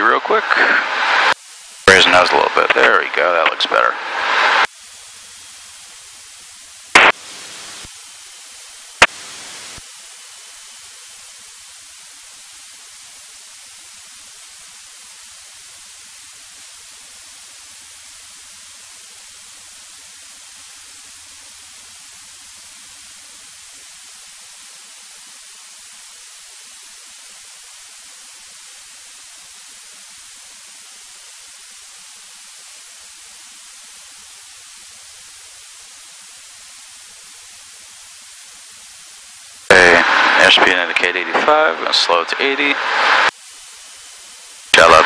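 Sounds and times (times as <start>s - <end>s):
intercom hiss: 0.0s - 4.7s, 6.9s - 8.0s, 39.6s - 45.0s
sharp intercom clicks: 7.0s - 7.2s, 44.8s - 45.0s.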